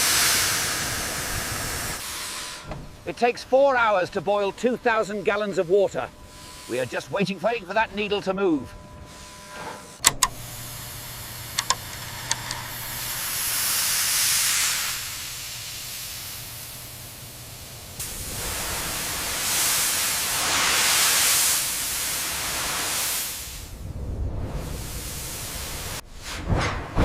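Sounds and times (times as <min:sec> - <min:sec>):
steam hissing from boiler: 0:00.0 - 0:27.0
low steady hum: 0:01.0 - 0:19.8
small clicks: 0:10.0 - 0:10.5, 0:11.5 - 0:12.9.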